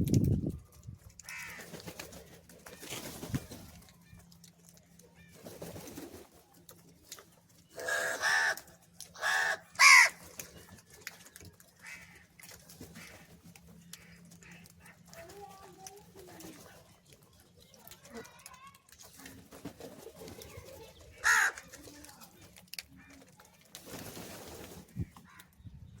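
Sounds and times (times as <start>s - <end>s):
crows cawing: 1.2s - 1.9s, 7.8s - 10.2s, 11.8s - 13.3s, 13.9s - 15.1s, 21.1s - 21.7s, 25.2s - 25.6s.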